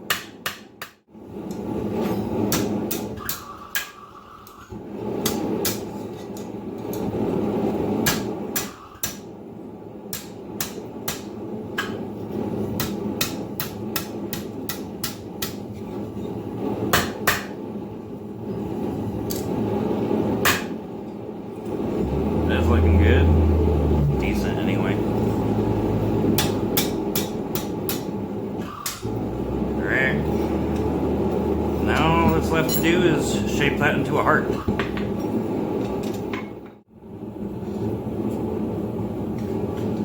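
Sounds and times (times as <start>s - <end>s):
hammer striking steel on anvil: 0.1s - 1.0s, 10.1s - 12.0s, 26.3s - 29.0s
steady rushing noise: 21.6s - 34.5s.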